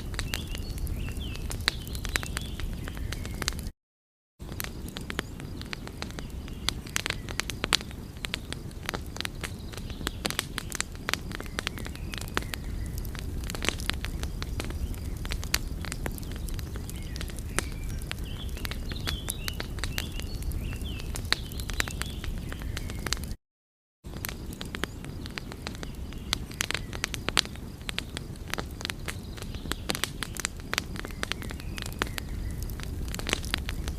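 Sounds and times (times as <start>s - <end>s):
low rumble of flames: 0.0s - 3.7s, 4.4s - 23.4s, 24.1s - 33.9s
wood fire crackling: 0.0s - 3.7s, 4.4s - 23.4s, 24.1s - 33.9s.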